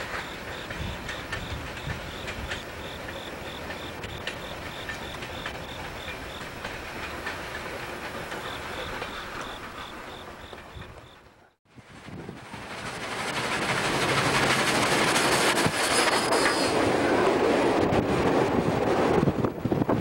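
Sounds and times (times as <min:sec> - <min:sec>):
faint high ticking: 0:00.0 - 0:11.2
train wheels clicking over rail joints: 0:00.0 - 0:11.5.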